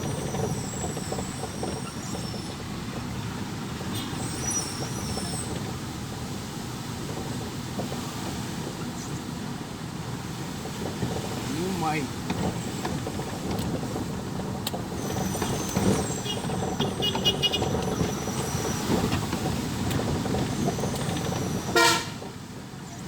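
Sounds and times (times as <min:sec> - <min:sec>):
traffic engines running: 0:00.0 - 0:23.0
car horn toot: 0:16.2 - 0:18.0, 0:21.6 - 0:22.3.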